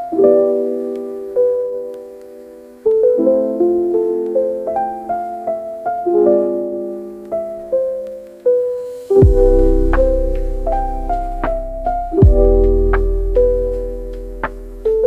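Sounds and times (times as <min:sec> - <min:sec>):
gentle piano melody: 0:00.0 - 0:15.0
deep bass note: 0:09.2 - 0:14.5.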